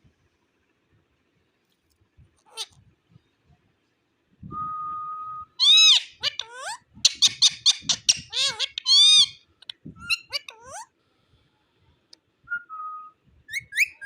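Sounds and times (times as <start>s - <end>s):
parakeet calling: 5.6s - 10.9s.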